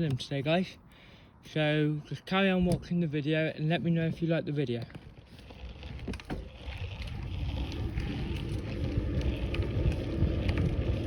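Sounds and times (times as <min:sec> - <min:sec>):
road noise: 0:00.0 - 0:11.0
wind rumbling on microphone: 0:03.7 - 0:11.0.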